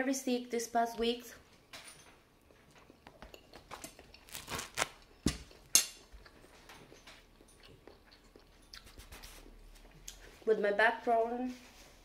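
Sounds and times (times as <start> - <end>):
mouth clicks and smacks chewing: 2.4 - 4.4, 5.0 - 10.4.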